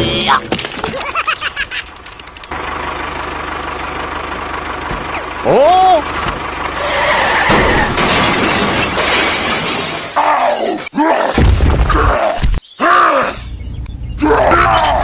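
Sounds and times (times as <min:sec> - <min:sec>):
loud crashing and shattering: 0:06.8 - 0:11.9.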